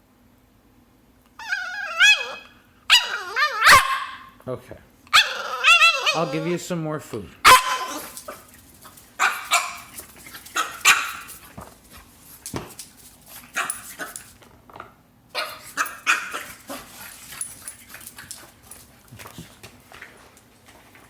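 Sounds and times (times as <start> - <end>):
puppy barking and yipping: 1.4 - 4.4, 5.1 - 6.5, 7.4 - 8.4, 9.2 - 11.4, 13.4 - 14.2, 15.3 - 18.8.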